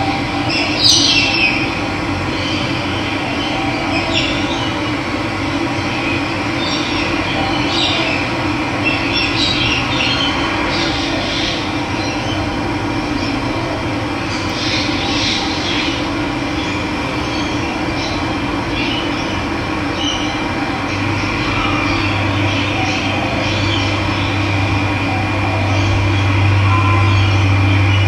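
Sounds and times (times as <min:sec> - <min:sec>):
birds chirping: 0:00.1 - 0:04.8, 0:14.2 - 0:28.0.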